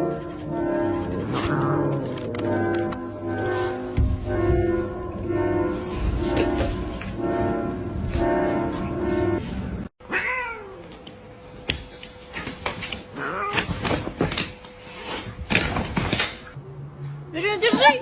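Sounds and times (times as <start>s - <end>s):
cat meowing: 10.1s - 10.8s.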